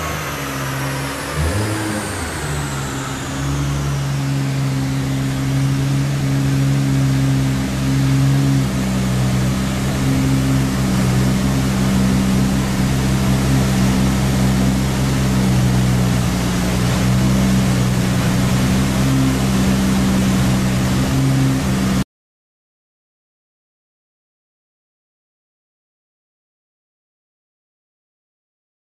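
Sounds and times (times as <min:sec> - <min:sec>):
car engine droning: 0:00.0 - 0:22.0.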